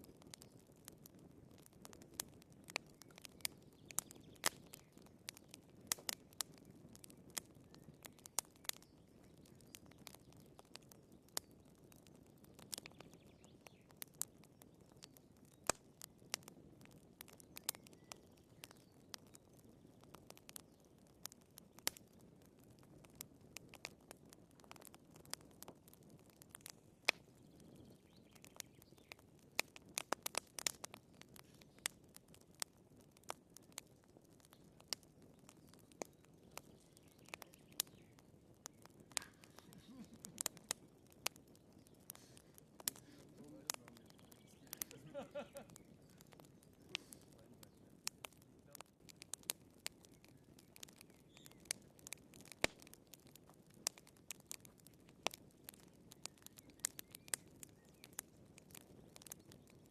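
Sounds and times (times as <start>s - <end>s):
wood fire crackling: 0.0s - 59.9s
faint low hiss: 34.2s - 53.0s.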